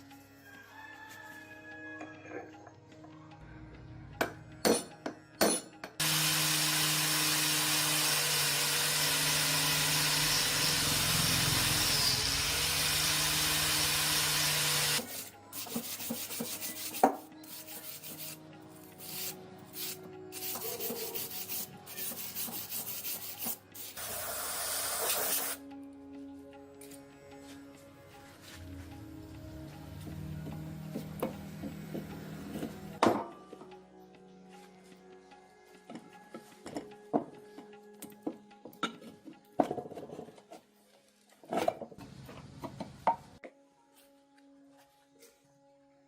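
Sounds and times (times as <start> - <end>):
power sander sanding: 6.0 - 15.0.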